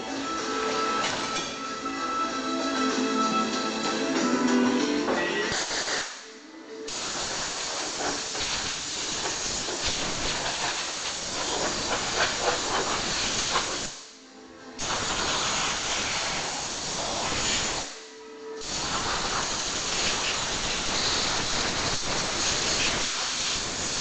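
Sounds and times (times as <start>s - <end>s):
air blow gun hissing: 5.5s - 14.1s, 14.8s - 24.0s.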